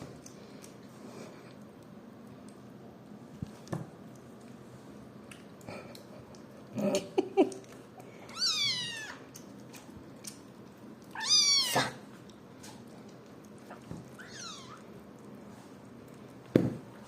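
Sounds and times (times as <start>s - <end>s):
kitten high mews: 11.2s - 12.0s.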